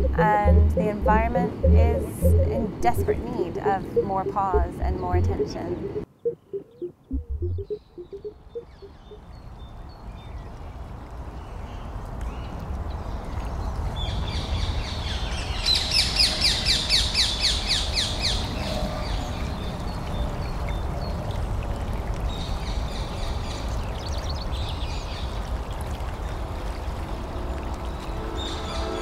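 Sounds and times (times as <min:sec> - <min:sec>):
steady low rumble: 0:00.0 - 0:08.8
bird chirping: 0:00.0 - 0:09.5.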